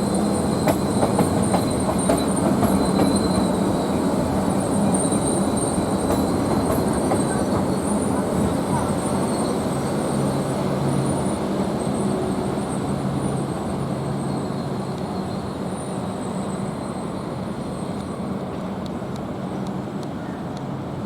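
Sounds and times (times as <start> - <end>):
train rumbling by: 0.0 - 21.0.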